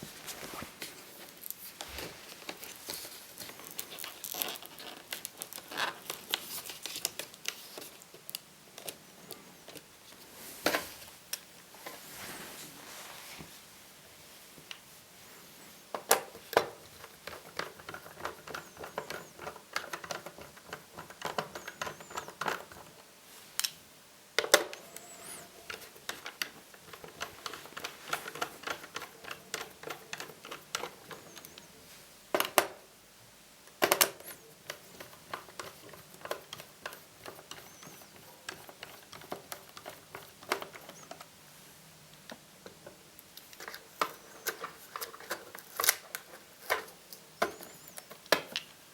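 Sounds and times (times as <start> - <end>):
screwdriver and plastic clicks: 24.4 - 31.7.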